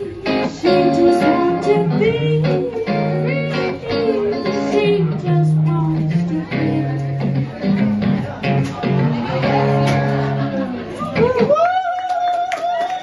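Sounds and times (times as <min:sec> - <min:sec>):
pop song on guitar: 0:00.0 - 0:10.5.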